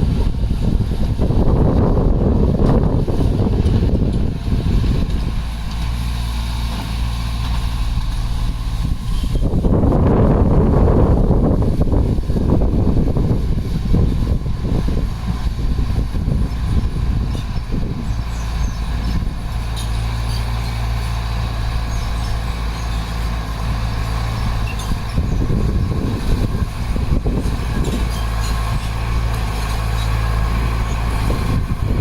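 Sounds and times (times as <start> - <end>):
heavy diesel engine running: 0.0 - 32.0.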